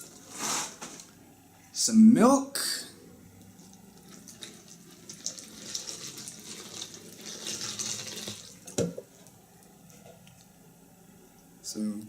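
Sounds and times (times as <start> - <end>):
milk pouring into a bowl: 3.3 - 10.6.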